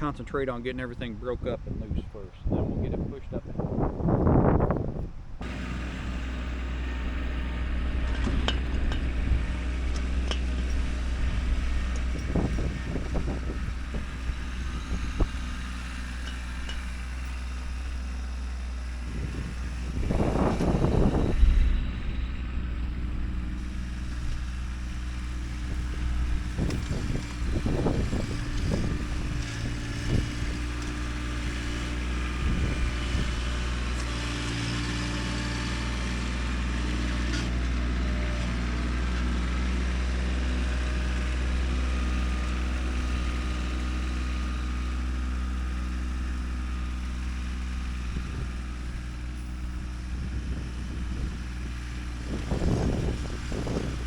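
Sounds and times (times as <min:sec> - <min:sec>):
plow working dirt: 0:00.0 - 0:54.0
tractor diesel engine running: 0:03.1 - 0:54.0.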